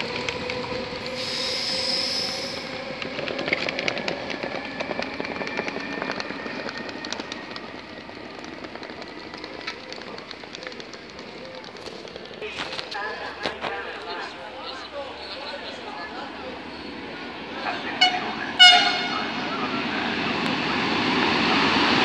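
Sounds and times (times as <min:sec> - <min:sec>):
wheels clicking over rail joints: 0:00.0 - 0:01.2, 0:02.3 - 0:14.2
electric train high whine: 0:00.0 - 0:22.0
train rumble: 0:00.0 - 0:22.0.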